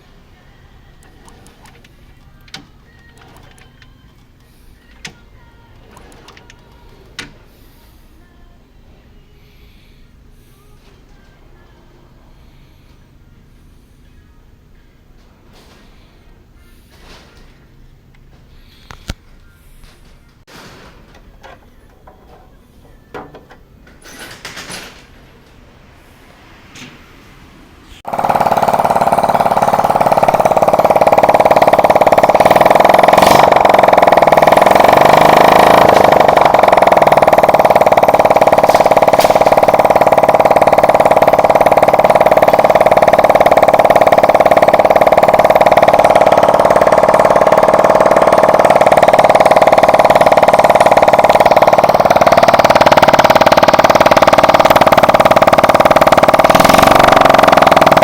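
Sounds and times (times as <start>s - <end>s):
small motorcycle engine running: 0.0s - 8.0s, 9.4s - 13.9s, 28.0s - 58.0s.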